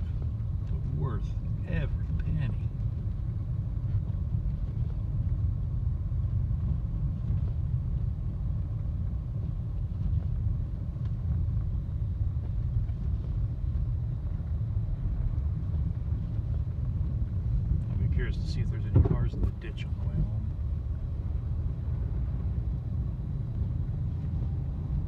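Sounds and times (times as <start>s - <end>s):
car road and tyre noise on snow: 0.0s - 25.0s
car engine: 14.7s - 25.0s.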